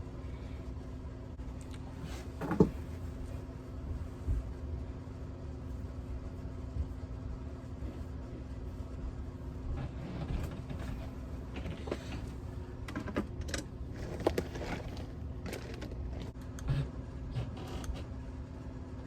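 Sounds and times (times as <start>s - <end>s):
steady low hum: 0.0s - 19.0s
objects clicking and rustling: 12.9s - 16.4s.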